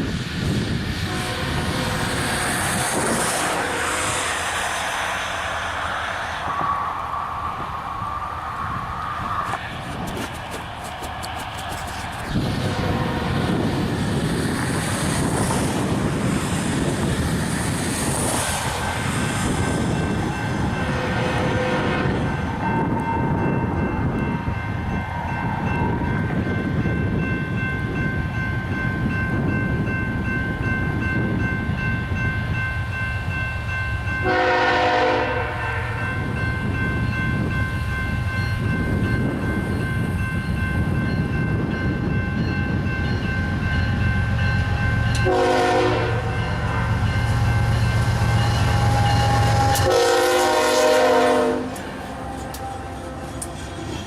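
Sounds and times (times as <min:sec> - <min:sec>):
moving train rumble: 0:00.0 - 0:54.0
locomotive air horn blasts: 0:01.1 - 0:02.6, 0:03.3 - 0:04.3, 0:12.6 - 0:13.6, 0:20.8 - 0:22.3, 0:34.2 - 0:36.1, 0:45.2 - 0:46.5, 0:48.6 - 0:53.2.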